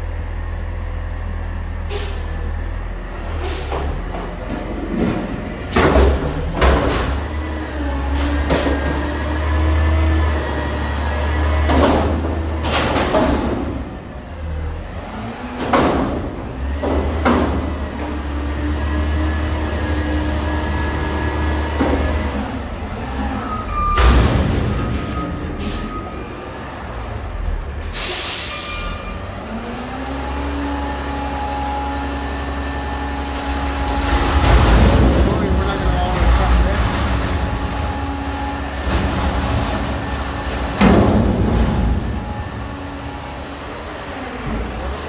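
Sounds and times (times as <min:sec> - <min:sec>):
diesel engine droning: 0:00.0 - 0:45.0
air brake hiss: 0:01.9 - 0:02.3, 0:03.4 - 0:03.8, 0:27.9 - 0:29.0
vehicle engine humming: 0:29.2 - 0:45.0.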